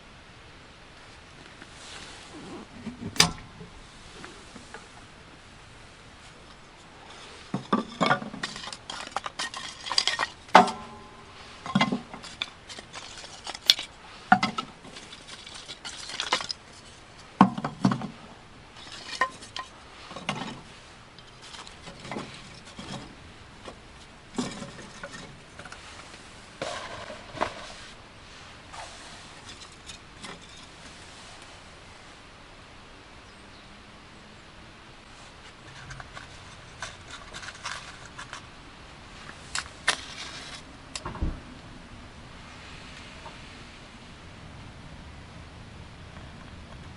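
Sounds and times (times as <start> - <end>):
metal items clanking: 3.0 - 3.7, 7.1 - 18.2, 18.8 - 23.2, 24.3 - 25.9, 26.6 - 27.8, 29.3 - 30.8, 35.7 - 38.5.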